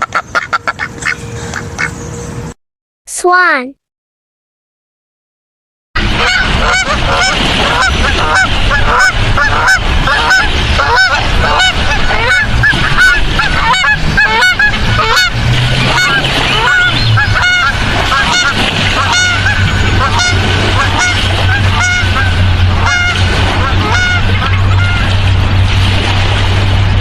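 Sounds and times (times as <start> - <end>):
swans calling: 0.0 - 2.0, 6.2 - 25.2.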